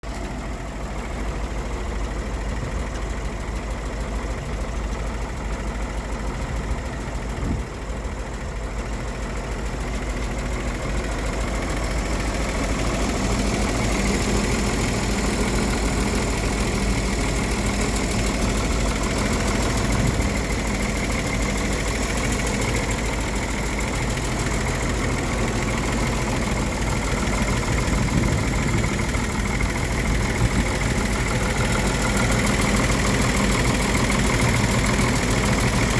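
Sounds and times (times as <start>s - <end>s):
truck engine idling: 0.0s - 35.9s.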